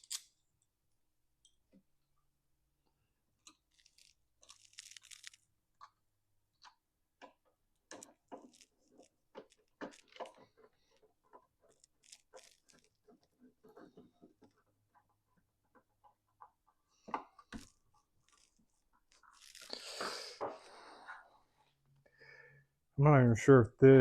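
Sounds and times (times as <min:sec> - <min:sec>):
crinkly rustle: 0:03.7 - 0:05.4, 0:07.9 - 0:14.5, 0:17.6 - 0:20.1.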